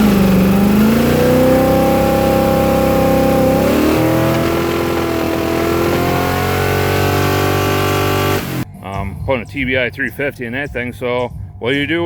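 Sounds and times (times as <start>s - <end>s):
engine revving at high revs: 0.0s - 8.6s.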